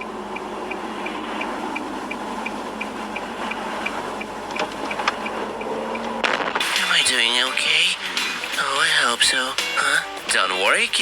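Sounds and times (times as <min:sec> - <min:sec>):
car turn signal ticking: 0:00.0 - 0:06.2
sharp clicks: 0:00.0 - 0:06.9
engine and road noise: 0:00.0 - 0:11.0.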